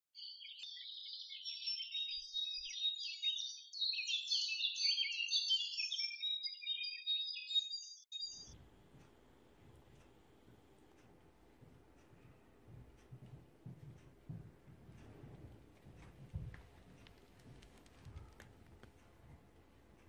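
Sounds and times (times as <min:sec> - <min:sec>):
birds chirping and singing: 0:00.2 - 0:08.5.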